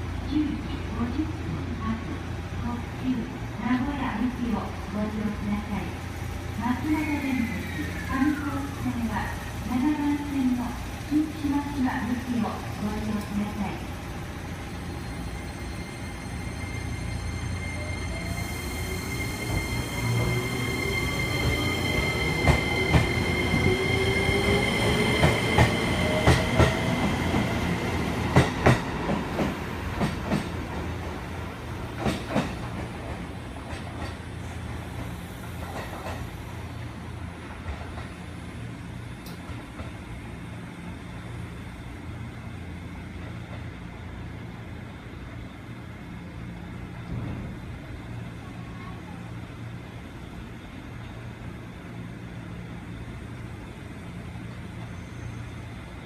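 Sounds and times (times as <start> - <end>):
train wheels squealing: 6.9 - 8.8, 14.6 - 27.1, 54.4 - 56.0.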